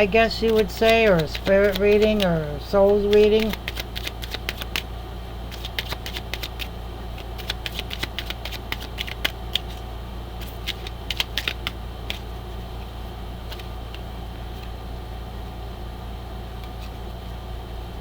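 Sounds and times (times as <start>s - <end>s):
cards being shuffled: 0.0s - 4.9s, 5.5s - 12.3s, 13.4s - 14.8s, 16.6s - 17.1s
steady low hum: 0.0s - 18.0s.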